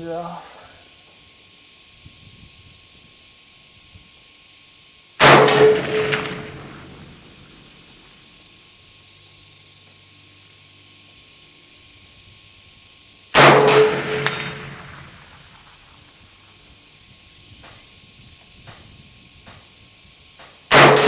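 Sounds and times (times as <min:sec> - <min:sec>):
low wind rumble: 0:05.2 - 0:08.2
rifle shot: 0:05.2 - 0:08.2, 0:13.4 - 0:15.9, 0:20.7 - 0:21.0.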